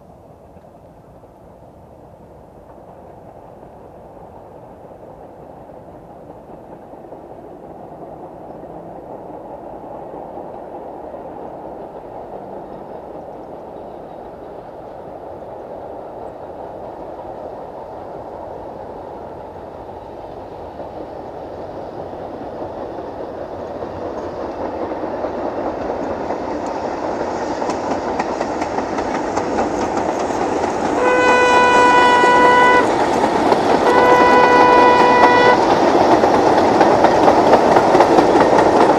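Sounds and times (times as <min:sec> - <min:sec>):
steam train running: 0:00.0 - 0:38.9
steam train whistle blasts: 0:31.0 - 0:33.0, 0:33.8 - 0:35.7.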